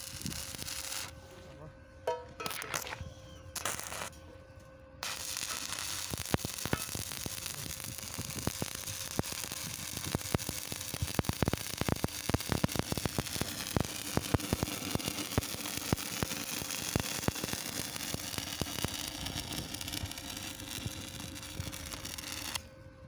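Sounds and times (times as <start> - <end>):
arc welding sizzle and crackle: 0.0 - 1.2, 2.4 - 4.2, 5.0 - 22.7.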